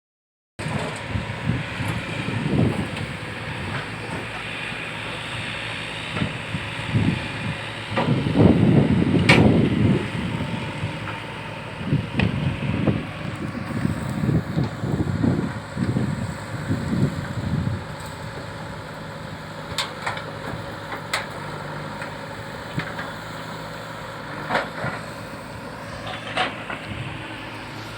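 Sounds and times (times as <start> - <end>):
wind buffeting microphone: 1.0 - 4.3, 5.4 - 20.8, 24.9 - 27.9.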